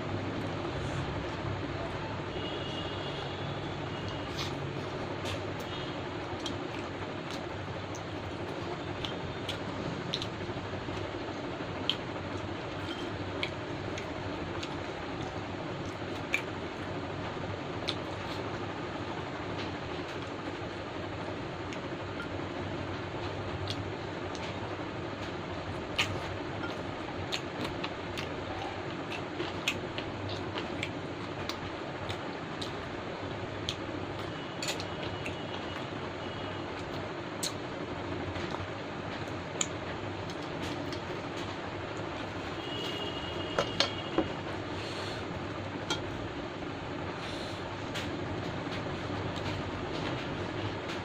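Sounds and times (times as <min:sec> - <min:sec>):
steady background hum: 0:00.0 - 0:51.0
person chewing toasted bread: 0:04.0 - 0:16.8, 0:25.5 - 0:33.0
eating sounds: 0:06.4 - 0:16.9, 0:25.7 - 0:32.9.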